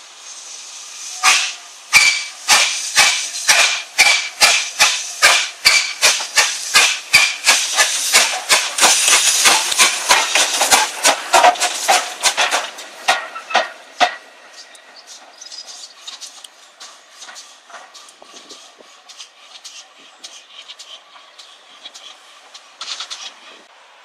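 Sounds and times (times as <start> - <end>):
steam locomotive chuffing: 0.0 - 23.7
steam hissing: 0.0 - 24.0.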